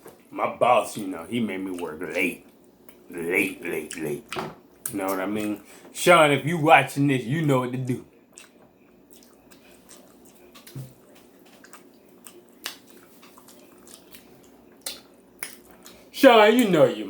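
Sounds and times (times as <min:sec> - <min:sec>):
person chewing: 0:08.1 - 0:16.1.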